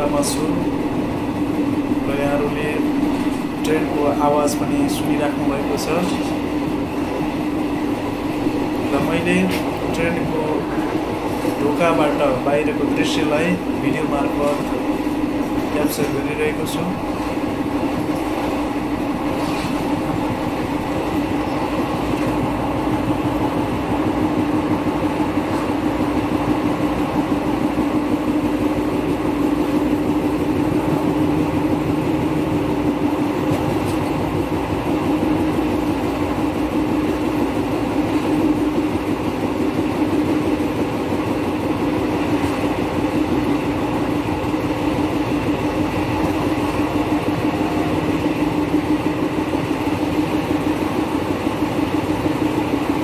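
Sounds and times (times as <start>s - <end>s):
constant low hum: 0.0s - 53.0s
train wheels rumbling on rails: 0.0s - 53.0s.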